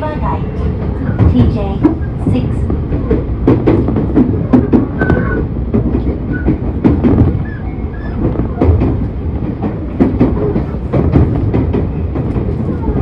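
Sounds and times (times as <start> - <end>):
train rumble: 0.0 - 13.0
wheels clacking over rail joints: 0.0 - 13.0.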